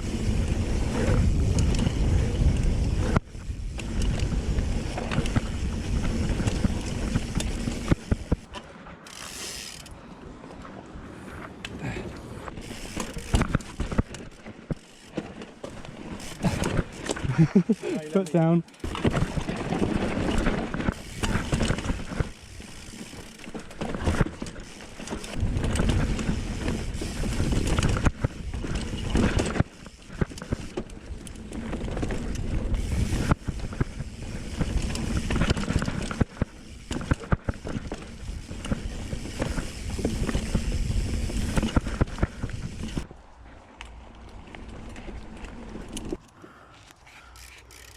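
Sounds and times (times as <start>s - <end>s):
wind on microphone: 0.0s - 8.4s
bike tyres rumbling over dirt: 0.0s - 47.9s.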